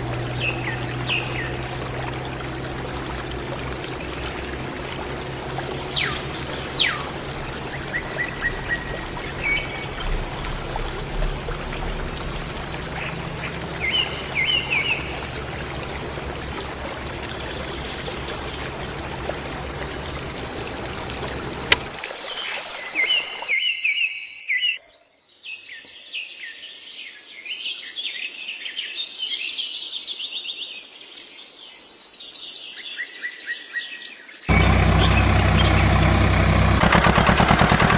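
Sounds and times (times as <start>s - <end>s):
water pouring: 0.0s - 23.6s
birds chirping: 0.0s - 24.4s, 34.5s - 37.9s.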